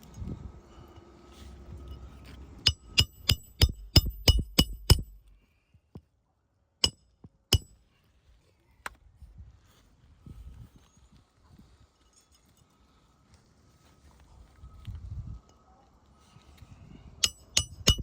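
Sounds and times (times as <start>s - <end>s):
hammer tapping metal tool: 1.8s - 5.4s, 6.8s - 7.8s, 17.2s - 18.0s.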